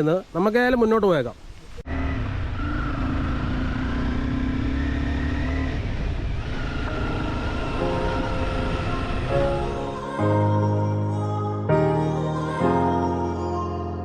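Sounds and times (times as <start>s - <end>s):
vehicle engine and road noise: 1.6s - 9.3s
background music: 6.8s - 14.0s.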